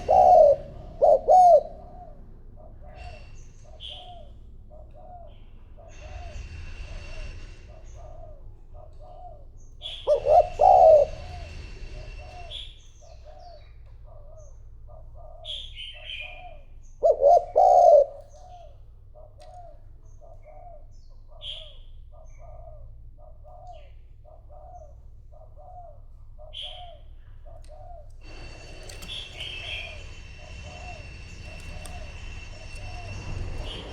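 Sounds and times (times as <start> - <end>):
loud three-note coo: 0.0 - 2.2
dove cooing: 0.0 - 33.9.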